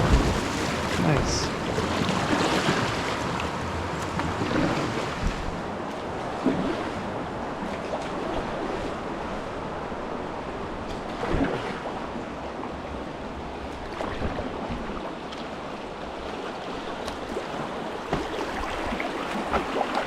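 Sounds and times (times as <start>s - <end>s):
sharp splashes: 0.0s - 3.4s
whitewater roaring: 0.0s - 20.0s.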